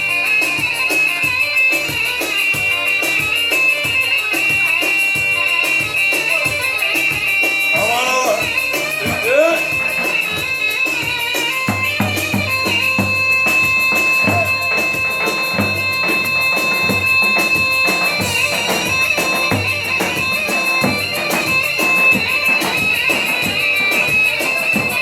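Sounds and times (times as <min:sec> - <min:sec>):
drum beats: 0:00.0 - 0:25.0
shrill reed wind instrument: 0:05.4 - 0:25.0.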